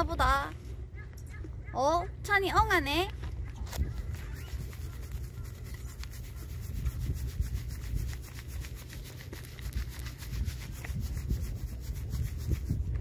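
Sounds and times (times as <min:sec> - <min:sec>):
low rumble of wind: 0:00.0 - 0:13.0
microphone rubbing and scratching: 0:03.2 - 0:13.0.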